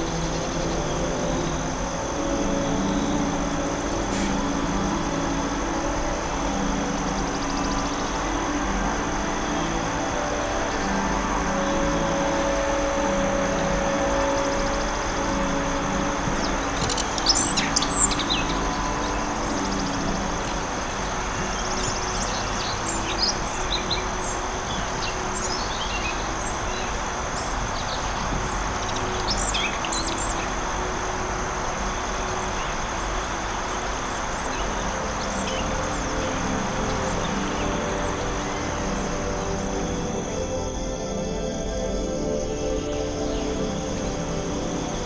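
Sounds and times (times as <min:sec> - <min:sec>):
birds chirping and trilling: 0:00.0 - 0:40.9
high-pitched hum: 0:00.0 - 0:45.0
rushing background wash: 0:00.0 - 0:45.0.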